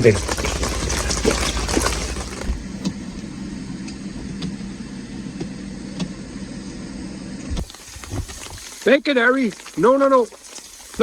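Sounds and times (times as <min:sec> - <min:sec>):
low engine-like hum: 0:00.0 - 0:07.6.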